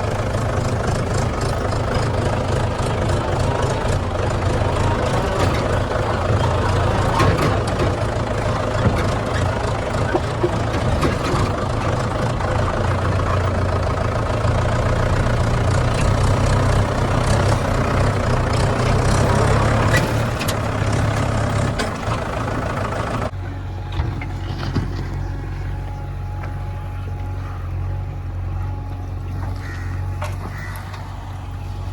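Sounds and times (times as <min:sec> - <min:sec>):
heavy diesel engine running: 0:00.0 - 0:31.9
metallic clanks and knocks: 0:04.4 - 0:12.4.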